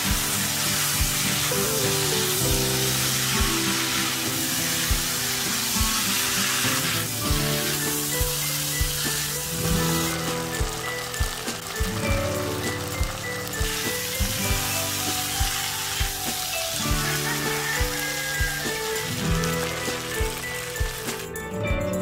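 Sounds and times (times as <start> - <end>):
spatula stirring in a wok: 0.0 - 11.9
food sizzling in a wok: 0.0 - 21.4
background music: 0.0 - 22.0.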